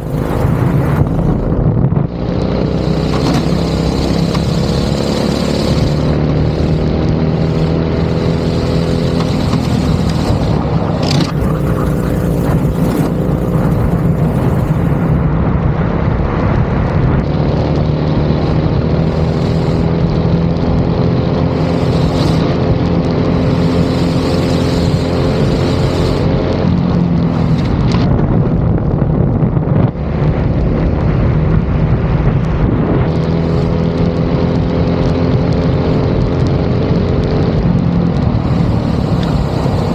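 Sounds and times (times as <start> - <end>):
go-kart engine revving: 0.0 - 15.3, 16.6 - 28.2, 30.2 - 39.9.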